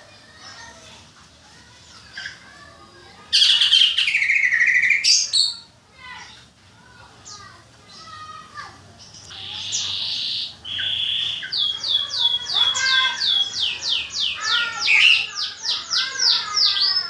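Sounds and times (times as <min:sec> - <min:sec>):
songbird buzzy trill: 0:03.3 - 0:05.7, 0:08.9 - 0:17.0.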